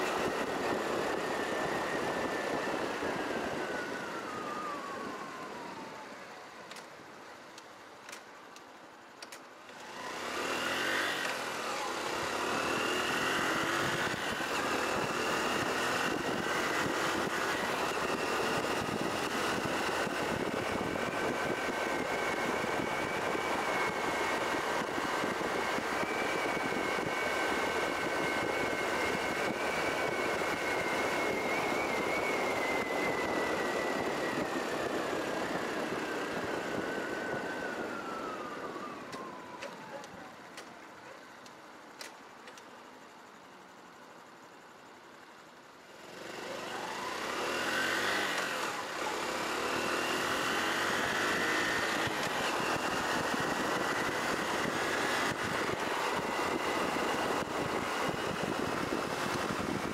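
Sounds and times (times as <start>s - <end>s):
wind noise: 0.0s - 6.1s, 12.6s - 40.0s, 49.9s - 59.9s
motorcycle engine whining: 0.0s - 6.9s, 9.0s - 41.2s, 45.8s - 59.9s
light clicks: 41.4s - 42.7s.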